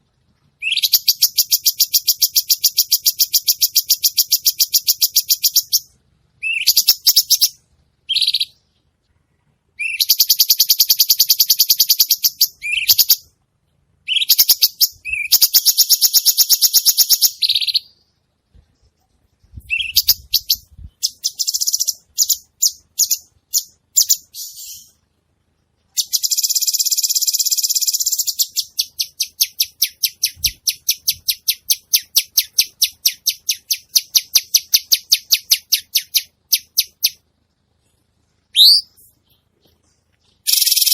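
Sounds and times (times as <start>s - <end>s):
songbird singing rapid high notes: 0.6s - 8.6s, 9.8s - 13.3s, 19.6s - 25.0s, 26.0s - 37.2s, 38.5s - 39.2s, 40.4s - 40.9s.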